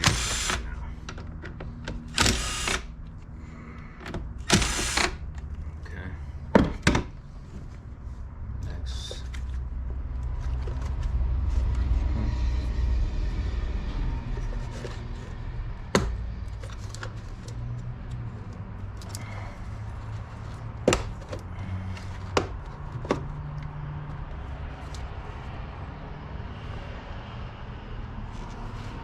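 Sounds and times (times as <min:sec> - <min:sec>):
low rumble: 0:08.2 - 0:16.8.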